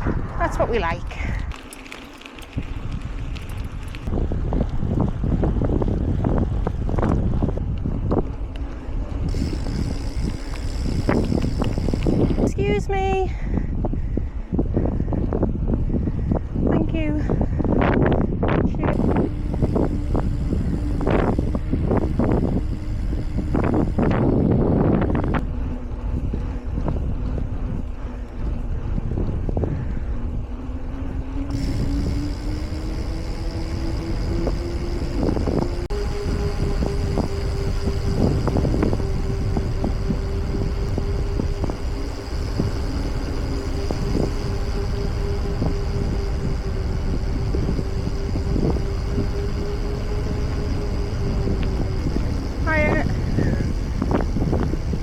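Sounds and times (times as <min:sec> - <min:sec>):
wind buffeting microphone: 0:00.0 - 0:55.0
small clicks and rattles: 0:01.1 - 0:04.8, 0:07.0 - 0:12.8
steady hum: 0:06.9 - 0:13.7, 0:18.1 - 0:28.9, 0:29.6 - 0:55.0.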